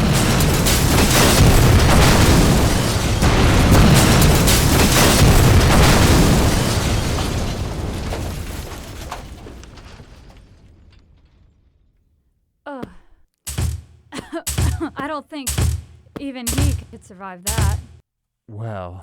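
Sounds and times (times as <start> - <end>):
rumbling explosion boom: 0.0 - 11.9.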